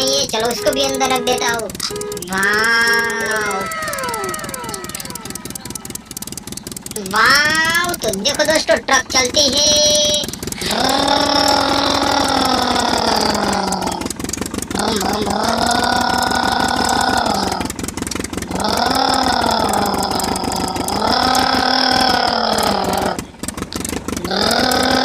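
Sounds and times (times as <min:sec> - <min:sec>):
electronic toy engine sound: 0:00.0 - 0:25.0.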